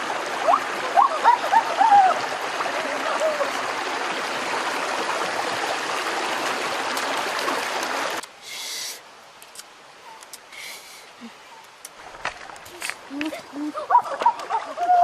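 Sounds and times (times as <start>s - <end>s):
river water rushing: 0.0s - 11.2s.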